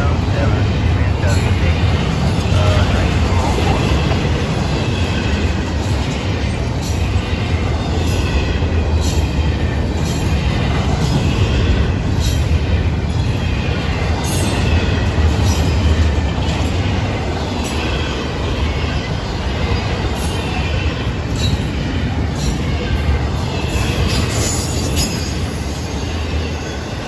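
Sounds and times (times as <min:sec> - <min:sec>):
faint high wheel squeal: 0:17.6 - 0:27.0.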